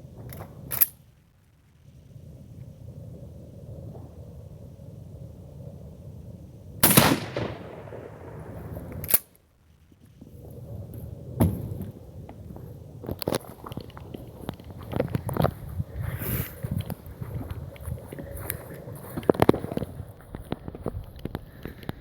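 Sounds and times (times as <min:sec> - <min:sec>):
shotgun firing: 0:06.8 - 0:09.2.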